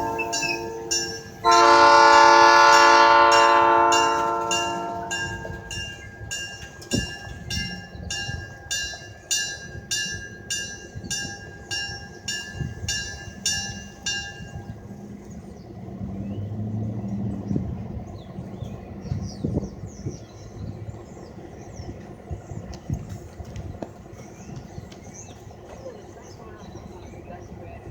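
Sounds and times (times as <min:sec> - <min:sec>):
train horn: 0:00.0 - 0:05.8
railroad crossing bell ringing: 0:00.0 - 0:15.2
clanking train wheels: 0:00.0 - 0:15.6
train rumbling past: 0:00.0 - 0:27.9.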